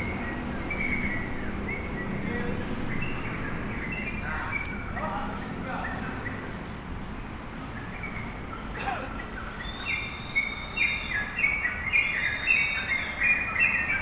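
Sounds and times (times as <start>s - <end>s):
bird singing bubbly whistled phrases: 7.8s - 14.0s.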